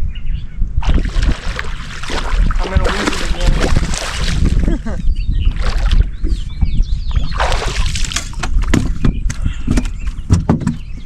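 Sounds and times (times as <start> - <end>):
fish splashing in water: 0.8 - 4.7, 5.5 - 6.1, 7.3 - 8.9.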